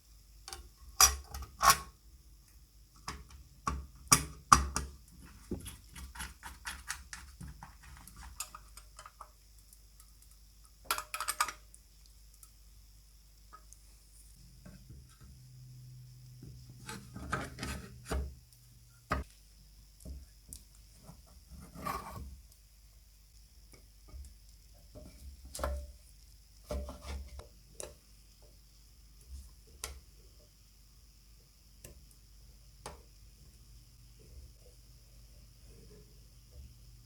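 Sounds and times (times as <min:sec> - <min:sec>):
small parts clicking and knocking: 0:03.0 - 0:12.6.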